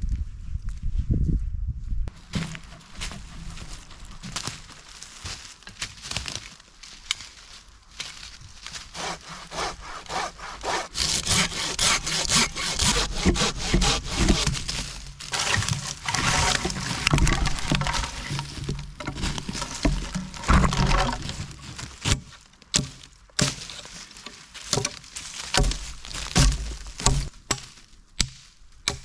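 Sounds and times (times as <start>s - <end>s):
hand saw cutting wood: 2.1s - 3.7s, 8.8s - 27.7s.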